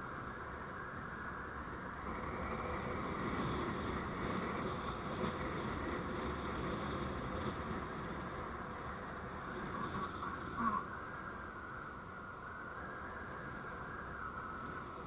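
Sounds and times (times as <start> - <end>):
vehicle engine and road noise: 1.3 - 10.9.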